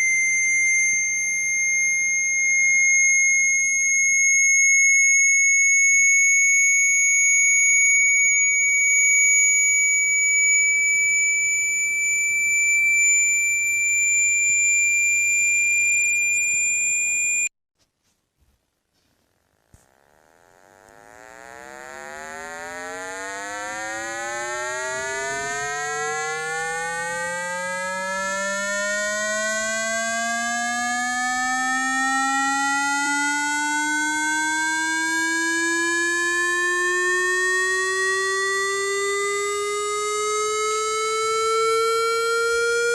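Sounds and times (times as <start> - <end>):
low buzzy rising tone: 0.0 - 4.3, 19.7 - 42.5
steady high-pitched tone: 0.0 - 17.5, 19.8 - 42.9.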